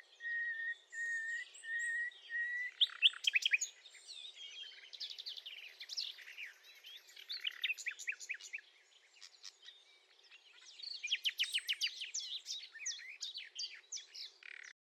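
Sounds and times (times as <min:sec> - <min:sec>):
nightingale singing: 0:00.0 - 0:14.8.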